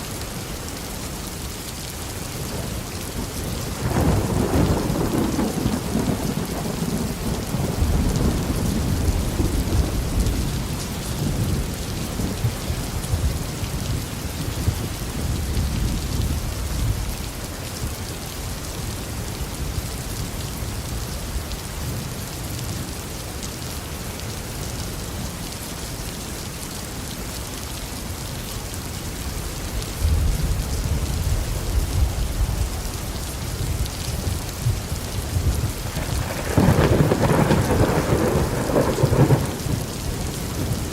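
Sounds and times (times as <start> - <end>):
heavy rain falling: 0.0 - 40.9
rolling thunder: 3.2 - 17.1, 30.0 - 40.9.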